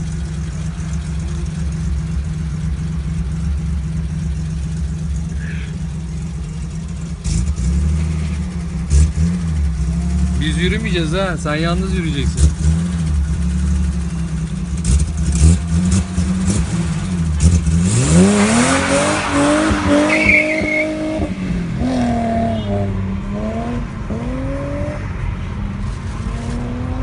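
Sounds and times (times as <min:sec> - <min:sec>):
car engine revving and accelerating: 0:07.0 - 0:27.0.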